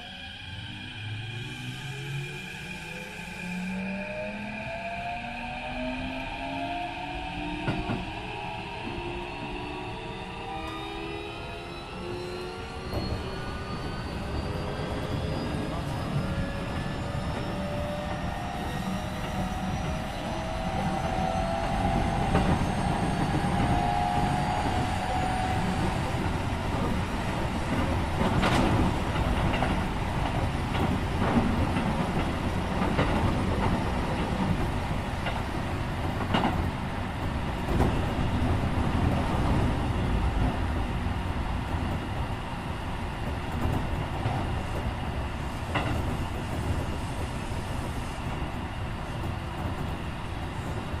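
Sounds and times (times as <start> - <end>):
train wheels rumbling on track: 5.7 - 51.0
clacks over rail joints: 27.7 - 36.7.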